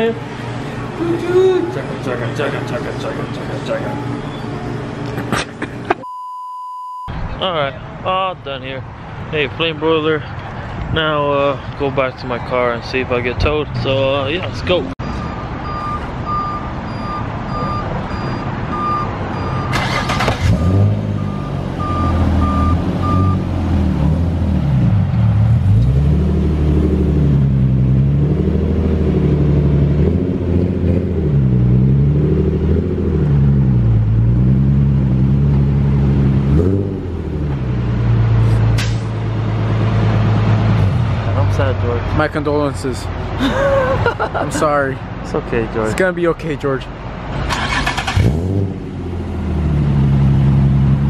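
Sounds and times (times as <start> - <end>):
reversing alarm beeping: 15.0 - 20.0, 21.2 - 23.4
vehicle engine revving: 19.4 - 42.0, 47.3 - 51.0.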